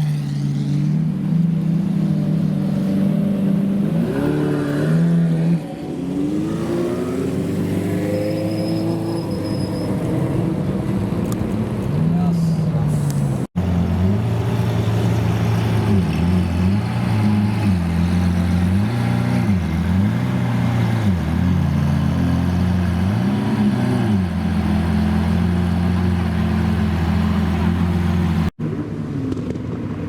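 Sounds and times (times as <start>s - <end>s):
car engine revving and idling: 12.7s - 29.4s.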